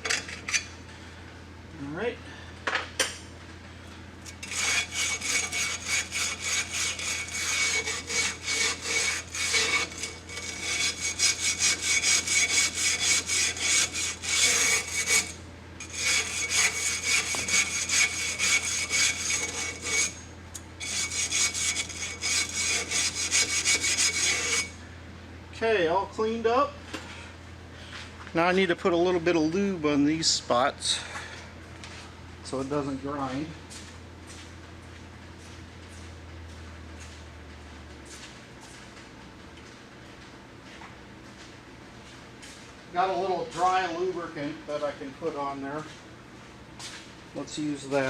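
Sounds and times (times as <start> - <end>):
hand scrubbing metal part: 4.4 - 20.2, 20.8 - 24.8.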